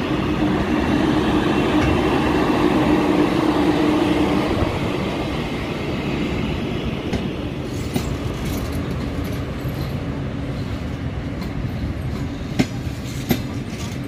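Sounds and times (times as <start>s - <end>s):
train wheels rumbling on rails: 0.0s - 14.0s
wheels clacking over rail joint: 11.4s - 14.0s.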